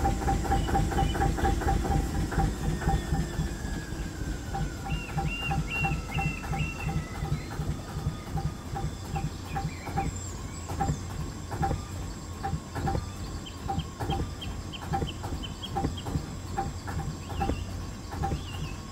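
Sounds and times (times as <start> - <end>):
diesel engine running: 0.0 - 18.9.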